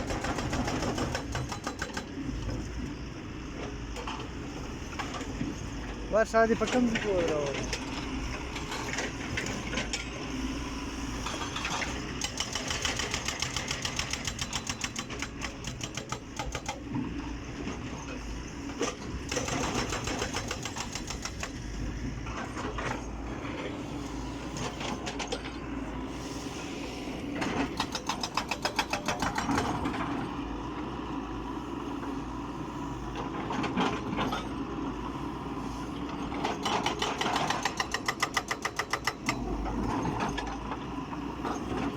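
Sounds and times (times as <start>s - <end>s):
diesel engine running: 2.1s - 38.0s.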